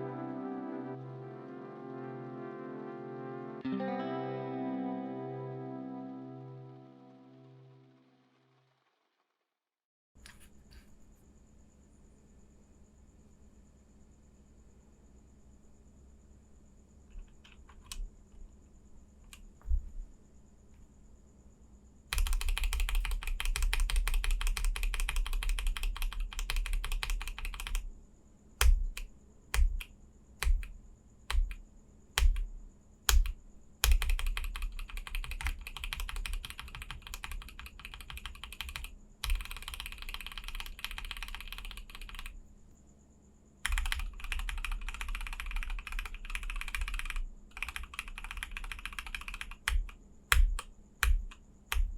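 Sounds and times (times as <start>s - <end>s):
mechanical keyboard typing: 17.2s - 18.0s, 22.1s - 27.9s, 28.6s - 31.6s, 32.2s - 32.5s, 33.1s - 42.4s, 43.6s - 51.9s.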